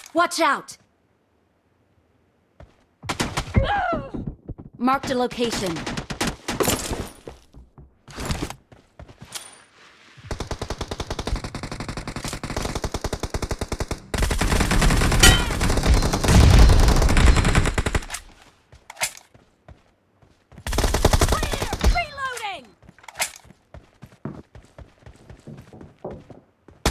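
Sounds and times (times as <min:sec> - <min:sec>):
video game automatic gunfire: 0:10.3 - 0:18.1.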